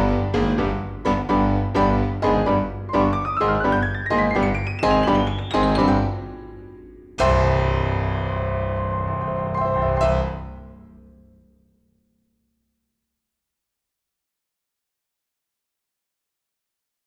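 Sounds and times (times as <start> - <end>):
piano chord ringing out: 0.0 - 11.4.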